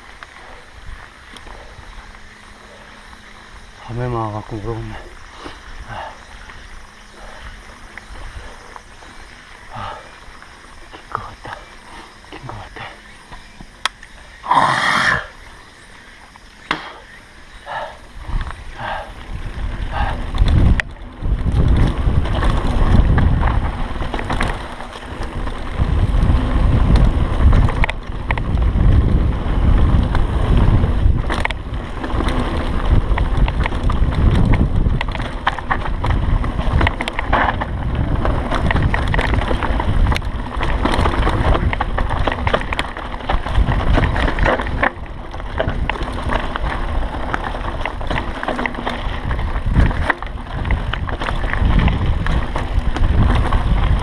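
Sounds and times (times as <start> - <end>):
wind buffeting microphone: 0.0 - 14.5, 15.1 - 54.0
bike knocking and rattling: 15.4 - 54.0.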